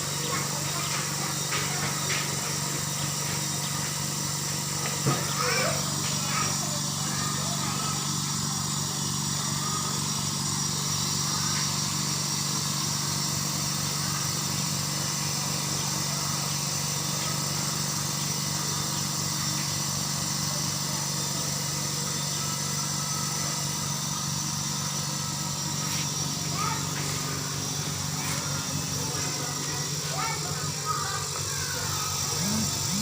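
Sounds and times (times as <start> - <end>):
compressor humming: 0.0 - 33.0
faint high whine: 20.9 - 33.0.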